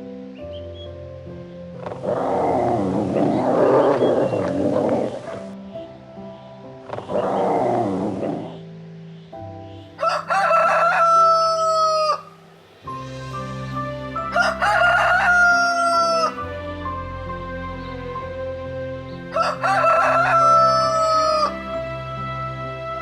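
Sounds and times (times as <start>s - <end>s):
background music: 0.0s - 23.0s
rooster crowing: 10.0s - 12.4s, 14.2s - 16.5s, 19.3s - 21.7s.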